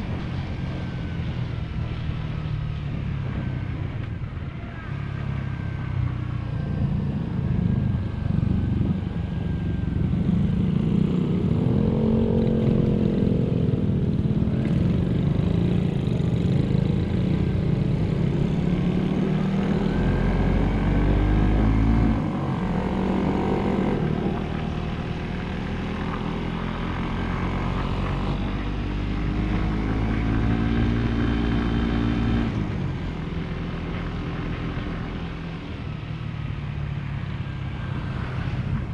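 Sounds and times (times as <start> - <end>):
wind rumble on microphone: 0.0 - 38.9
motorcycle engine revving: 6.9 - 32.8.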